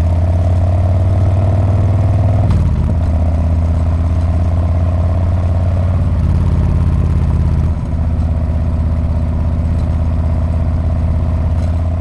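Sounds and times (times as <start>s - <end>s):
motorcycle engine running at low revs: 0.0s - 12.0s.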